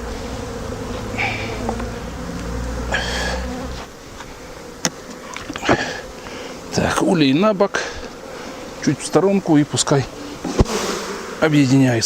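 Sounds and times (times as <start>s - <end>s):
honeybees buzzing: 0.0s - 12.0s
sharp knocks: 10.4s - 11.6s.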